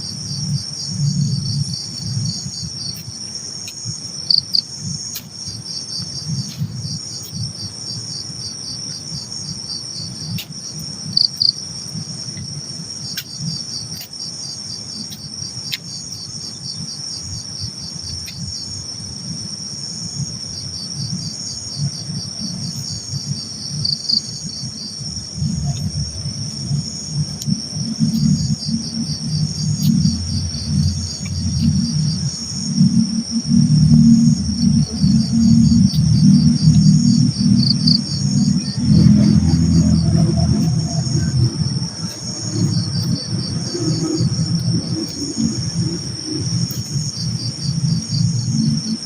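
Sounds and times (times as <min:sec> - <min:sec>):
crickets chirping: 0:00.0 - 0:49.0
low rumble: 0:21.8 - 0:49.0.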